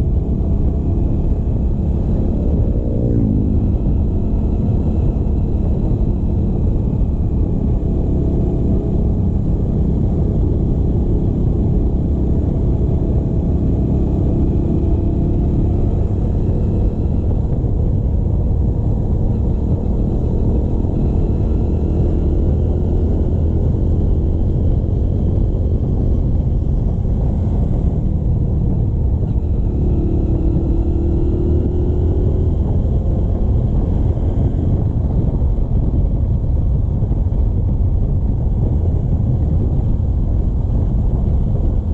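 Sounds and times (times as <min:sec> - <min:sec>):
motorcycle engine running: 0:00.0 - 0:41.9
wind and road noise: 0:00.0 - 0:41.9.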